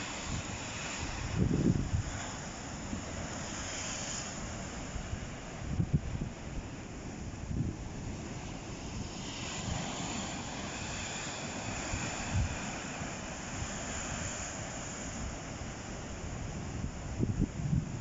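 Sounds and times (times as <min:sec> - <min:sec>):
sea waves breaking: 0:00.0 - 0:17.4
wind buffeting microphone: 0:00.2 - 0:02.4, 0:05.0 - 0:06.4, 0:16.2 - 0:18.0.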